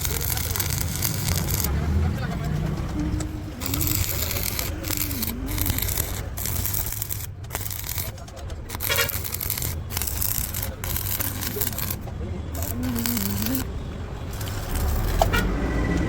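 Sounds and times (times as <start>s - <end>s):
welding arc crackling: 0.0s - 2.1s, 3.4s - 15.4s.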